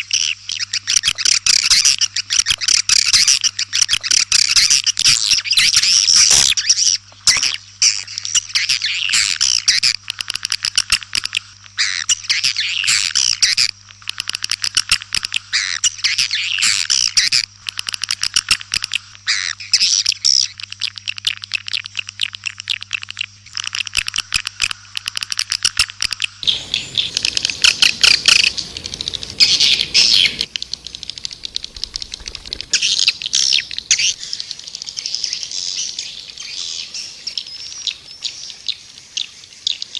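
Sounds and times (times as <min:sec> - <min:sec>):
faint low hum: 0:26.2 - 0:39.8
swiftlets twittering: 0:26.4 - 0:37.4.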